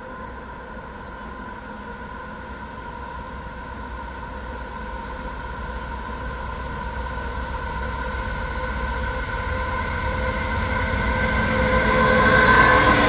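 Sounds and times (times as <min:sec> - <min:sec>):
diesel locomotive rumble and whine: 0:00.0 - 0:13.0.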